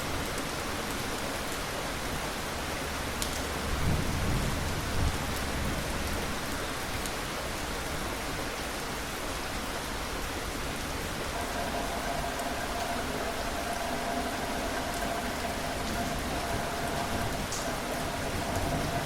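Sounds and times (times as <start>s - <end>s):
heavy rain falling: 0.0s - 19.0s
faint steady tone: 11.1s - 19.0s
rumble of thunder: 11.4s - 19.0s.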